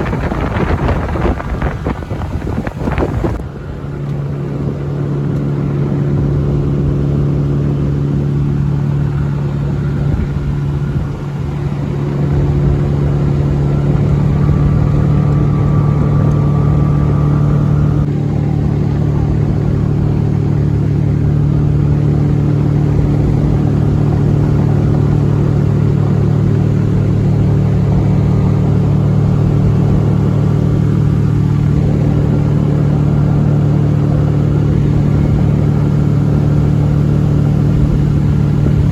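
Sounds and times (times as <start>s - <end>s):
outboard motor humming: 0.0s - 38.9s.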